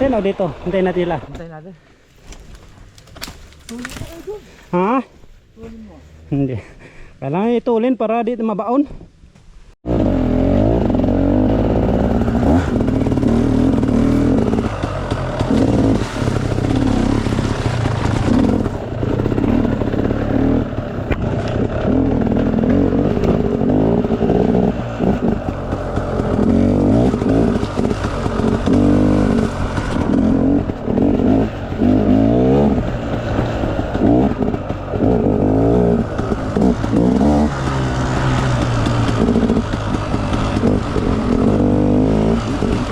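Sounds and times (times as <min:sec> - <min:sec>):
dirt bike engine revving: 0:09.8 - 0:42.9.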